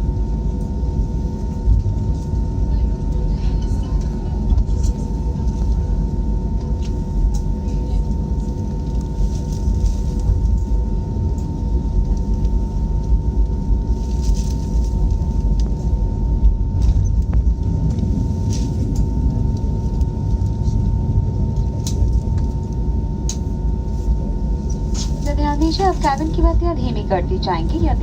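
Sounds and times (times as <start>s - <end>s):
jet engine rumble in cabin: 0.0s - 28.0s
thin constant whine: 0.0s - 28.0s.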